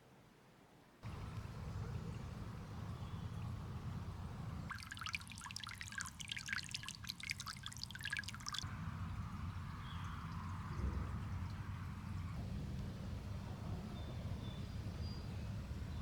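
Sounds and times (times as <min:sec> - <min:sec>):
low steady rumble: 0:01.0 - 0:06.2, 0:08.6 - 0:16.0
water pouring and splashing: 0:04.6 - 0:12.1.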